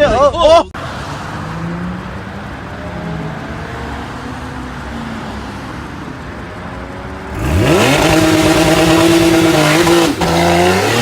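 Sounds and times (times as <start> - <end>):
car engine revving: 6.7 - 11.0.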